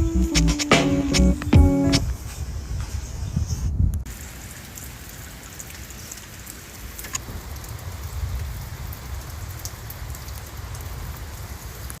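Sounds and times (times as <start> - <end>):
rain patter: 3.9 - 12.0.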